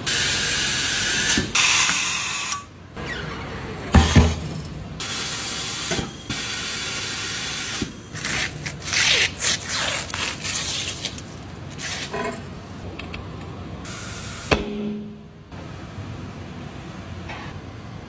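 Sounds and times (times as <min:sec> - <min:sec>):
short hissing spurts: 0:08.2 - 0:12.1.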